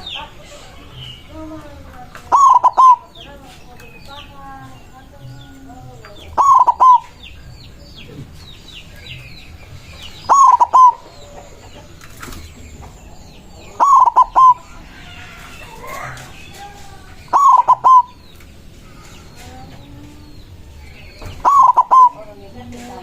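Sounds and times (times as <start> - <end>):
dove cooing: 2.2 - 3.2, 6.3 - 7.2, 10.3 - 11.6, 13.7 - 14.8, 17.3 - 18.2, 21.3 - 22.5
faint bird chirps: 13.6 - 22.3.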